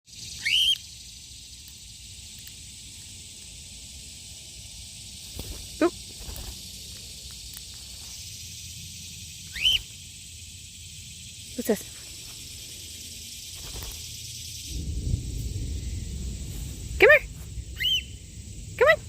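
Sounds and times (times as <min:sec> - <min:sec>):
outdoor background hiss: 0:00.0 - 0:19.0
cockatiel whistling: 0:00.4 - 0:00.8, 0:09.5 - 0:09.9, 0:17.8 - 0:18.2.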